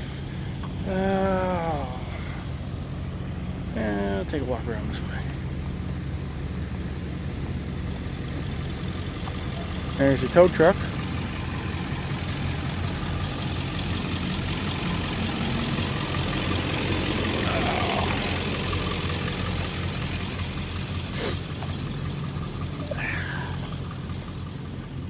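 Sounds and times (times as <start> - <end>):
truck engine idling: 0.0 - 25.0
sharp hiss: 21.1 - 21.6.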